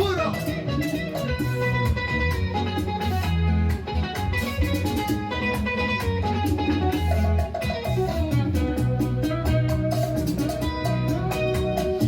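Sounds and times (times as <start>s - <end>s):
low bass line: 0.0s - 12.0s
picked guitar melody: 0.0s - 12.0s.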